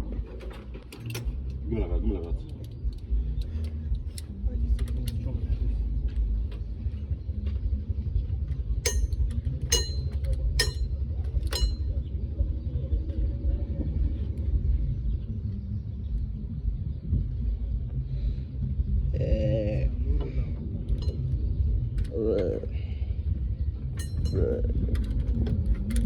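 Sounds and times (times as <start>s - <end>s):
steady low rumble: 0.0s - 26.0s
ringing metal-on-metal clinks: 8.8s - 12.0s, 24.0s - 24.6s.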